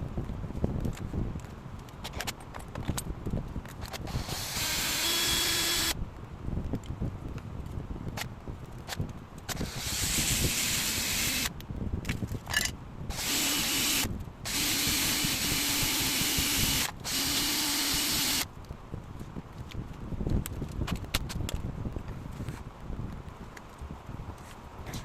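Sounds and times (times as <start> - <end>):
power tool whirring: 4.0 - 6.0, 9.5 - 11.5, 13.1 - 18.4
steady motor hum: 4.1 - 5.9, 13.1 - 18.4.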